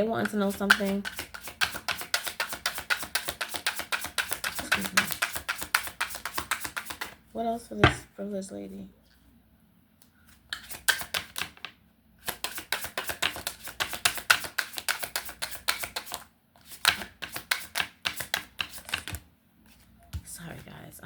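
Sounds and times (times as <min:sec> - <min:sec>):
cards being shuffled by hand: 0:00.3 - 0:07.2, 0:10.5 - 0:11.6, 0:12.2 - 0:19.9.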